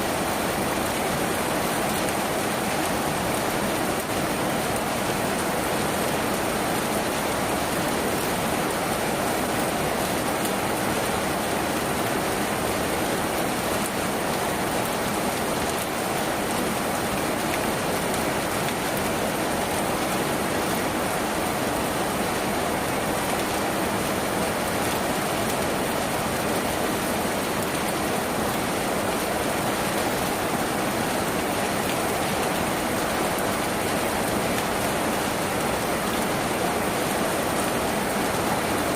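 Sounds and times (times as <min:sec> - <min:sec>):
rain on a tin roof: 0:00.0 - 0:38.9.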